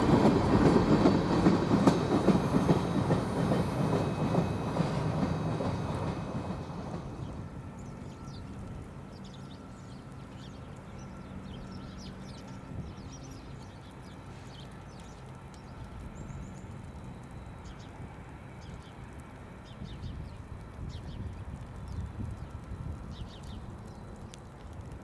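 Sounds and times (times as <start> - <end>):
small birds chirping: 6.6 - 24.7.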